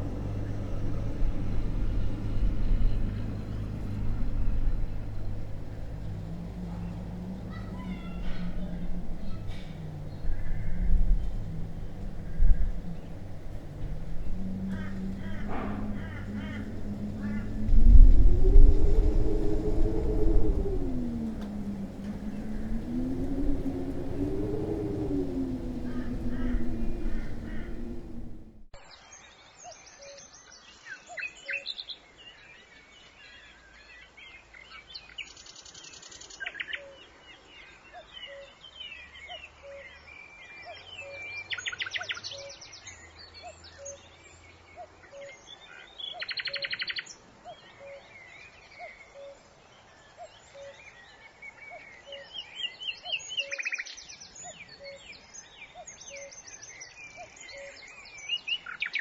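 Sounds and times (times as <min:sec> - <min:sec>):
wild birds chirping and singing: 0:00.0 - 0:28.7.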